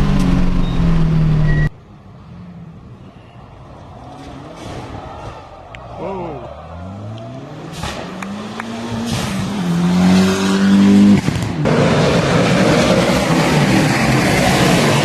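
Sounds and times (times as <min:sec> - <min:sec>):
harsh noisy engine: 0:04.1 - 0:15.0
race car engine accelerating: 0:06.0 - 0:15.0.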